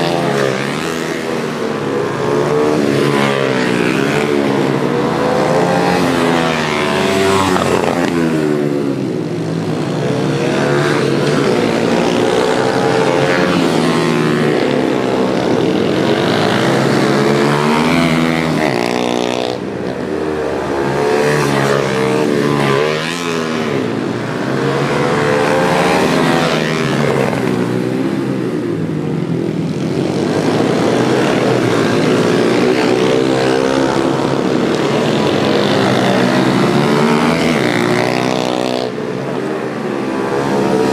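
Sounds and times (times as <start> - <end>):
pit bike engines revving: 0.0 - 40.9.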